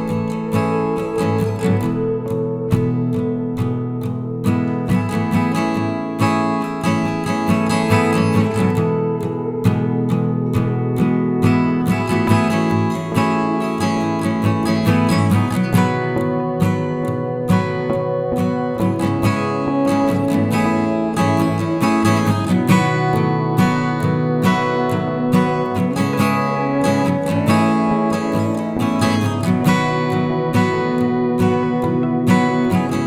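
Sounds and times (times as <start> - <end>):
acoustic guitar playing: 0.0 - 33.0.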